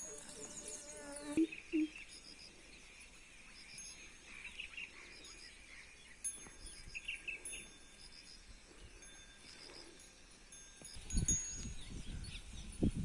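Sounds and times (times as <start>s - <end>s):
bird chirps: 0.0s - 9.8s.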